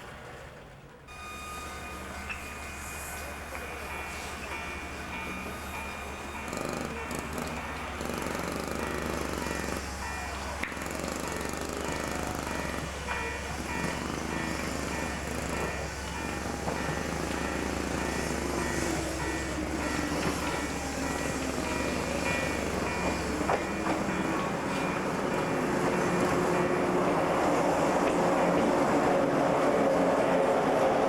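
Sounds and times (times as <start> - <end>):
train running: 0.0 - 31.0.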